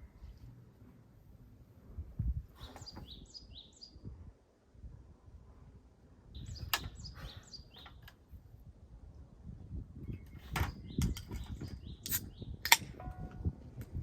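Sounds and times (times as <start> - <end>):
songbird chirping: 2.5 - 4.2, 6.2 - 8.4, 9.2 - 13.6
sharp click: 12.0 - 13.0.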